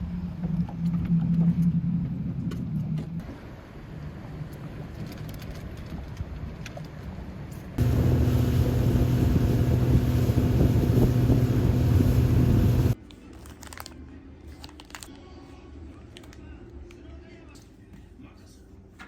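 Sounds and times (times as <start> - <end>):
engine running with low hum: 7.8 - 13.0.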